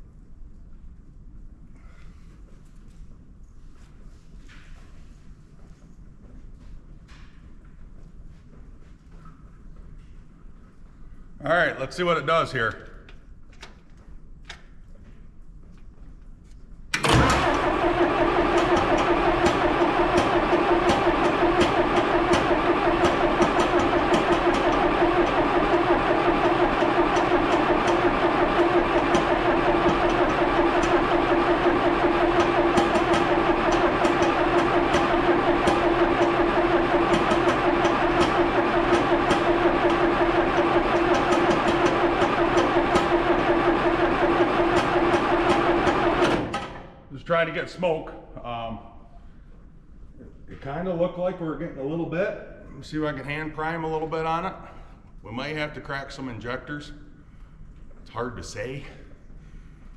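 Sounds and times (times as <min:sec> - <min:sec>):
diesel engine cranking: 0:16.9 - 0:47.0.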